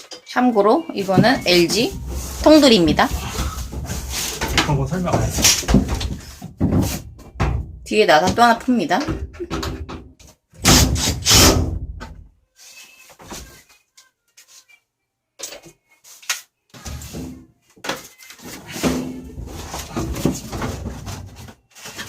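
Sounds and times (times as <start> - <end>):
tools knocking and scraping on plastic: 1.0 - 12.2, 16.8 - 22.0.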